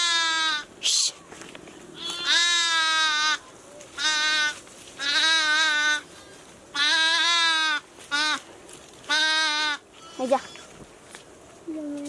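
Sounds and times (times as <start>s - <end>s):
sheep bleating: 2.0s - 3.4s, 4.0s - 8.4s, 9.1s - 10.6s.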